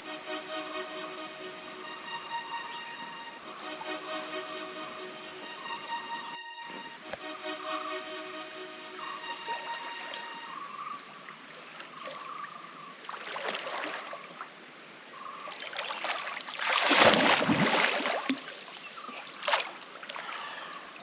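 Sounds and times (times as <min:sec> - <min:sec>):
water splashing in a pool: 0:13.0 - 0:14.5, 0:15.6 - 0:18.6.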